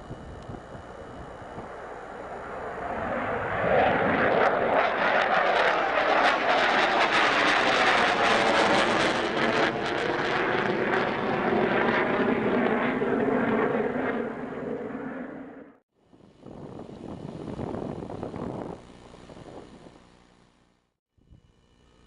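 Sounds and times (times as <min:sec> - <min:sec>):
jet engines roaring: 0:00.0 - 0:15.8.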